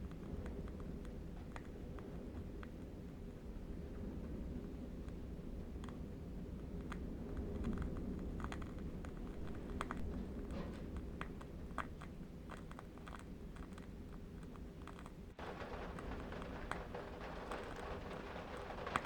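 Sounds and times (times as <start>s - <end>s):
low rumble: 8.9s - 11.8s, 15.4s - 19.0s.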